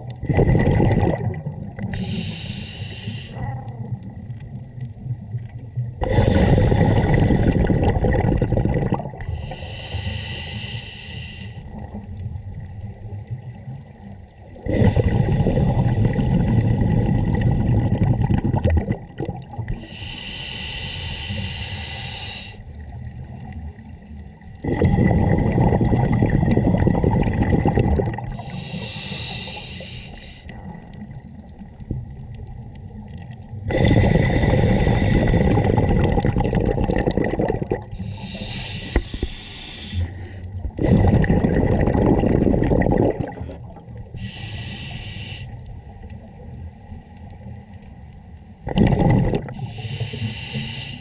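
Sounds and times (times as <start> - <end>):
exhaled bubbles rumbling: 0.0 - 10.4, 11.6 - 20.3, 22.6 - 50.7
hissing regulator inhalation: 1.9 - 3.5, 9.3 - 11.7, 19.8 - 22.6, 28.3 - 30.5, 33.7 - 35.8, 37.9 - 41.1, 44.2 - 45.6, 49.5 - 51.0.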